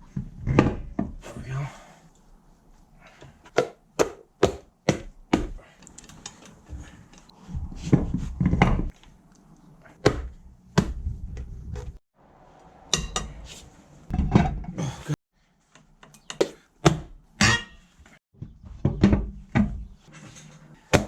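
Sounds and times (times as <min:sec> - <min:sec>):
scraping handling noise: 0:19.5 - 0:21.0.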